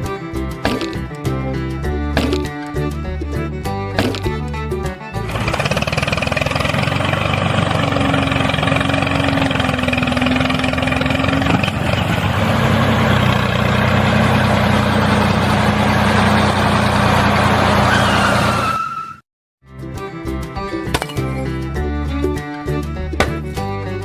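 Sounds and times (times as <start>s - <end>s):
music: 0.0s - 5.6s, 19.6s - 24.0s
engine running steadily: 5.1s - 18.6s.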